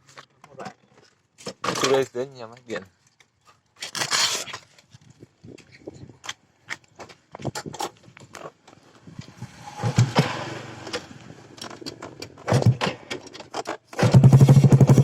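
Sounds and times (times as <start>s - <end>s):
motorcycle handling clicks and clatter: 5.6s - 10.2s, 10.8s - 15.0s.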